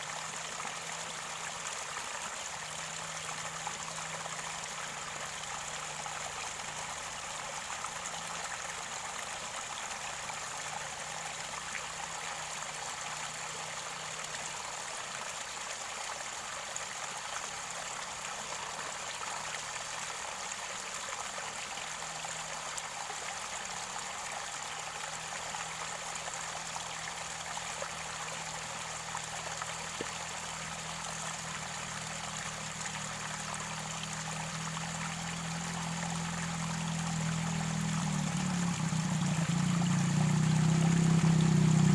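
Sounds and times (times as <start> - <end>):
stream water gurgling: 0.0 - 41.9.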